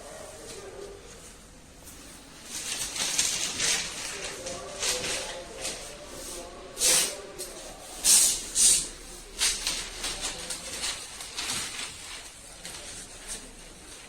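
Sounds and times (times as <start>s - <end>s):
compressed air hissing: 6.8s - 9.5s.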